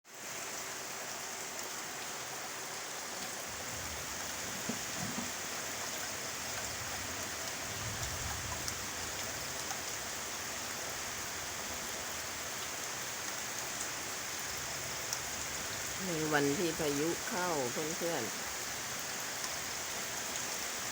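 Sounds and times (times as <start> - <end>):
heavy rain: 0.0 - 20.9.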